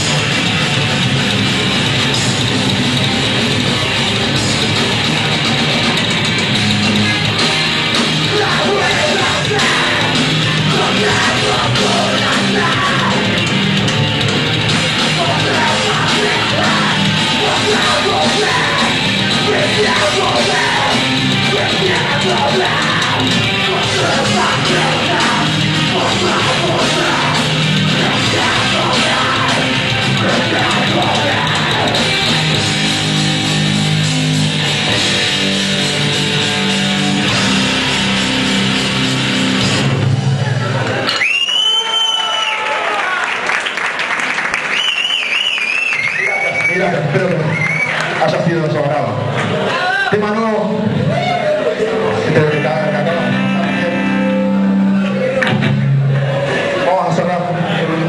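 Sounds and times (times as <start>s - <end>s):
heavy rock band playing: 0.0s - 41.3s, 45.3s - 58.0s
vocalist yelling: 8.3s - 13.3s, 15.2s - 32.2s.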